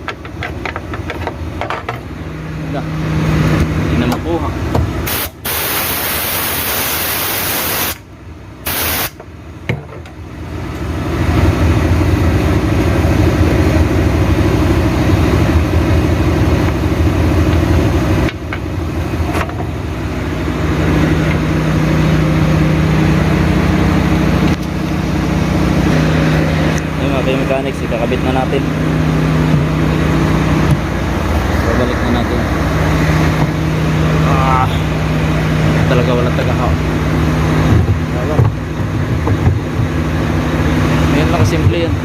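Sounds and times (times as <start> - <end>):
engine-like drone: 0.0 - 42.0
loud hiss: 5.1 - 8.0, 8.6 - 9.2
low hum: 8.0 - 42.0.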